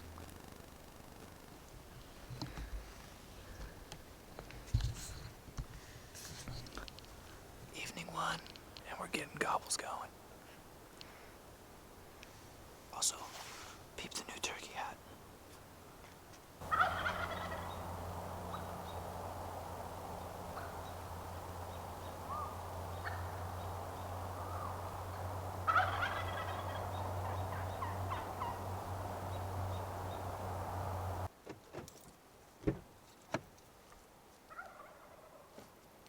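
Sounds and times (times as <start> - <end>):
steady low hum: 0.0 - 5.2, 7.2 - 31.3
turkeys gobbling: 16.6 - 31.3, 34.5 - 35.5.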